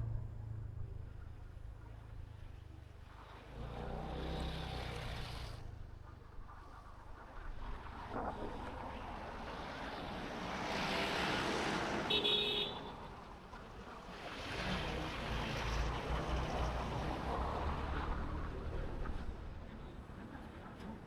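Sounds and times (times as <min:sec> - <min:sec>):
deep rumble: 0:00.0 - 0:02.6
motorbike engine and road noise: 0:00.0 - 0:21.0.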